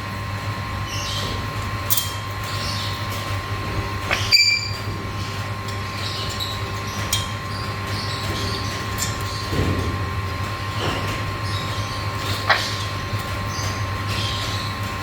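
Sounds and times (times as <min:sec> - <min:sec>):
steady low hum: 0:00.0 - 0:15.0
parrot screeching calls: 0:04.1 - 0:04.8, 0:12.3 - 0:13.0.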